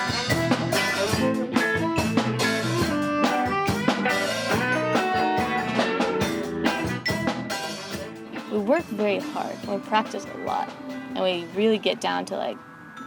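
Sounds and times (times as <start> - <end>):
electric guitar: 0.0 - 9.6
drum kit beat: 0.0 - 11.8.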